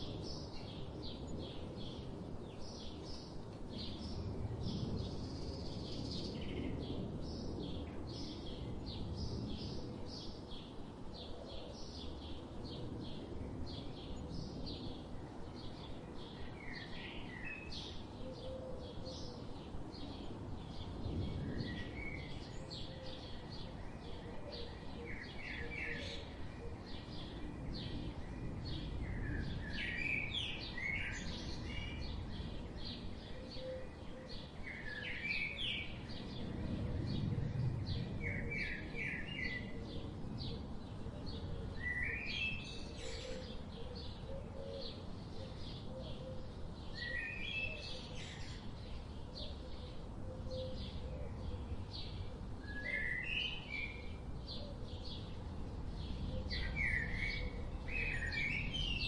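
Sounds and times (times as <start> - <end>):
bird song with rising notes: 25.1 - 59.0.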